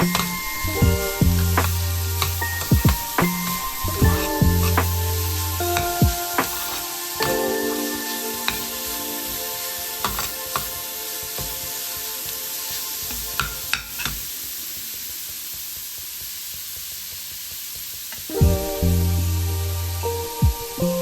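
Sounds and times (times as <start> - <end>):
food sizzling in hot oil: 0.0 - 18.4.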